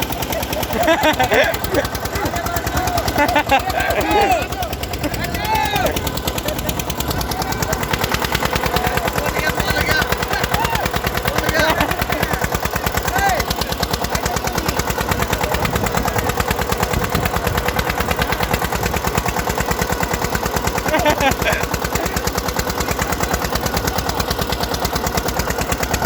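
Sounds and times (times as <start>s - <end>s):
tractor diesel engine chugging: 0.0s - 26.0s.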